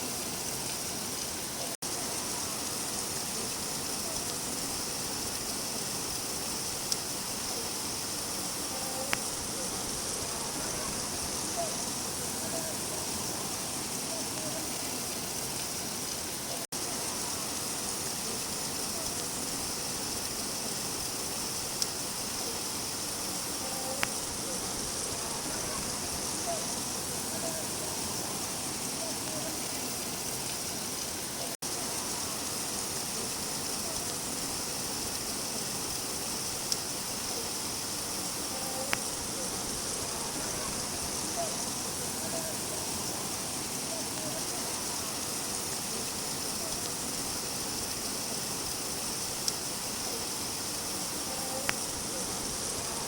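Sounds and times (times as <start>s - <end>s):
steady rain falling: 0.0s - 53.0s
faint ticks: 8.7s - 9.4s, 18.2s - 26.6s, 33.4s - 40.8s, 51.1s - 52.7s.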